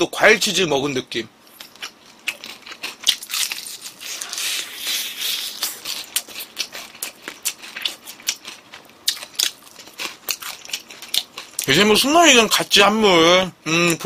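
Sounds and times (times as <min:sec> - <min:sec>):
crispy chicken crunching: 0:01.6 - 0:12.0.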